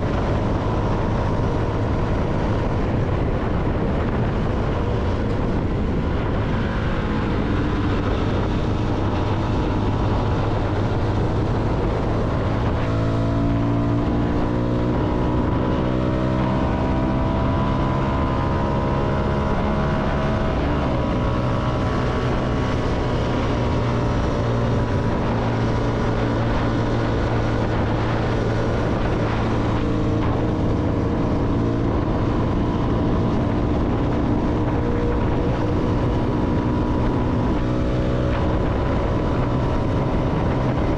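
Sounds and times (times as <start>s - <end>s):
motorcycle engine running: 0.0s - 40.9s
wind rush: 0.0s - 40.9s.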